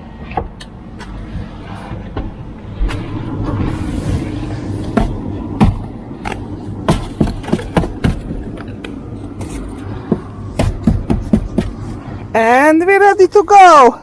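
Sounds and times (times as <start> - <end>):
low steady rumble: 0.0 - 14.0
sharp knocks: 4.8 - 8.7, 9.4 - 12.0.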